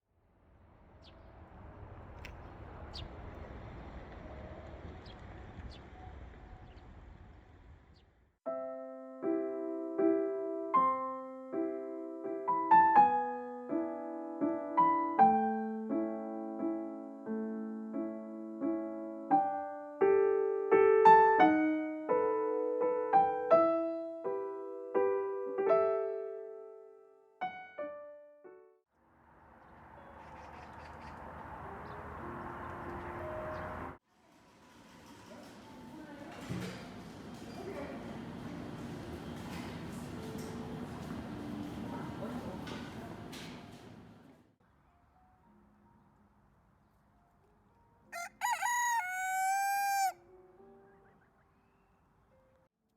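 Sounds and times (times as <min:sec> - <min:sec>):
solo piano waltz: 0:08.5 - 0:28.8, 0:31.2 - 0:34.0.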